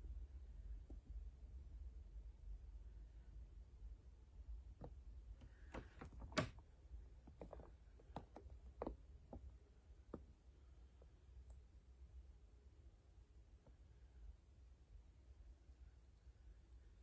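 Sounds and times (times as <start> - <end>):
faint low hum: 0.0 - 17.0
light clicks and knocks: 4.8 - 6.6, 7.2 - 10.4.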